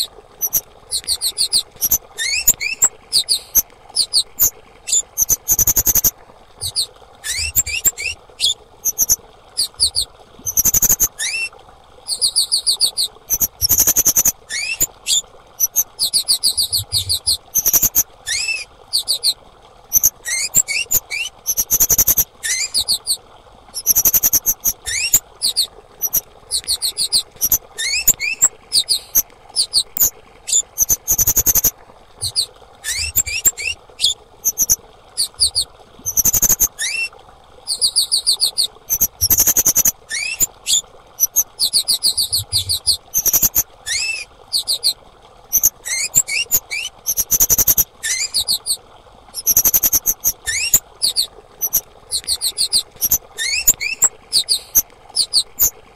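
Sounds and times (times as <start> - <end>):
short rising whistles: 0.0 - 11.5, 12.1 - 21.8, 30.5 - 36.3
insect high chirps and trills: 0.4 - 8.1, 8.8 - 11.1, 13.3 - 14.9, 15.6 - 19.3, 19.9 - 23.0, 23.8 - 28.1, 30.8 - 36.6, 38.9 - 40.5, 42.0 - 44.0, 45.5 - 45.7, 46.3 - 48.4, 49.4 - 53.7.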